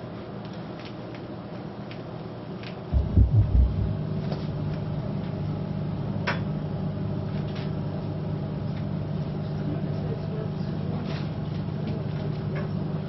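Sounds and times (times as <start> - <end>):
low machine hum: 2.9 - 13.0
low thumps: 3.0 - 4.2.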